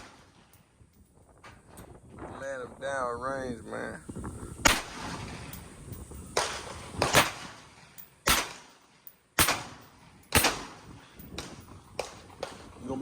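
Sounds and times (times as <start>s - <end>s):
gunshots with echo: 6.4s - 12.7s.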